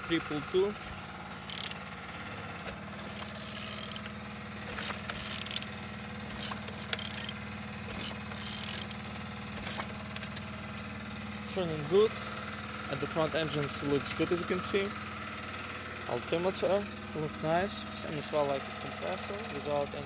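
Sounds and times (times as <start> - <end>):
ratchet wrench clicking: 1.4 - 1.8, 2.6 - 9.0.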